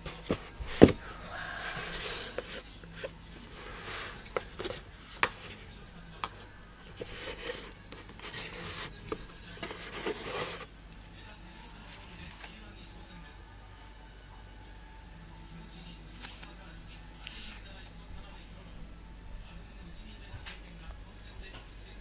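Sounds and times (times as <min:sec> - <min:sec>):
packaging rustling and rubbing: 0:00.1 - 0:05.7, 0:06.8 - 0:10.7.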